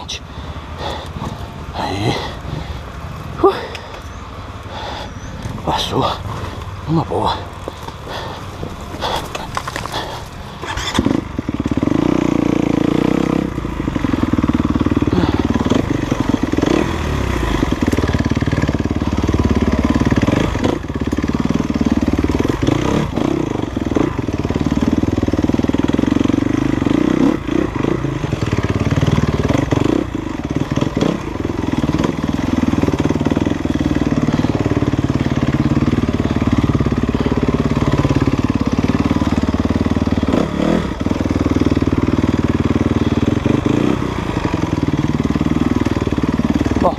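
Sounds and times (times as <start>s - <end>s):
dirt bike engine running: 0.0s - 46.9s
knocks and clatter over ground: 5.4s - 11.9s.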